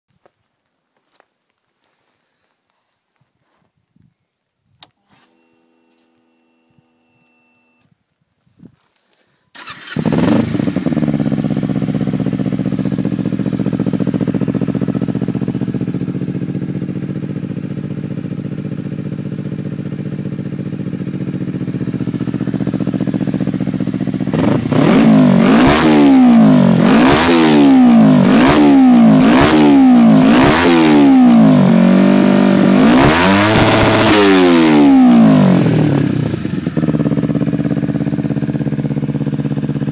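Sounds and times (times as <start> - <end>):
motorcycle engine starting: 9.5 - 39.9
motorcycle engine idling: 9.6 - 32.8, 34.6 - 39.9
engine revving in blips: 24.3 - 36.4.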